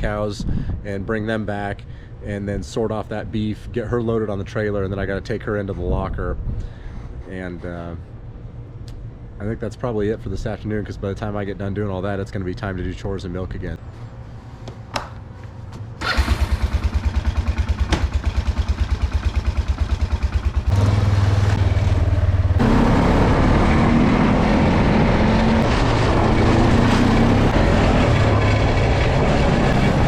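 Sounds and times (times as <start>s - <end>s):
small vehicle engine starting and idling: 16.0s - 24.9s.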